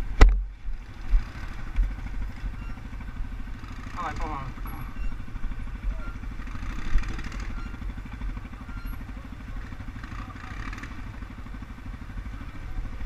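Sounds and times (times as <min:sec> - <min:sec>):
atv engine chugging: 0:00.0 - 0:13.0.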